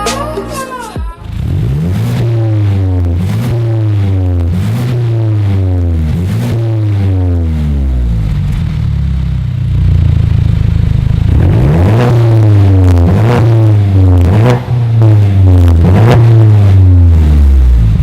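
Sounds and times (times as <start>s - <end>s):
electronic music: 0.0s - 1.4s
car engine rumbling and revving: 0.0s - 18.0s.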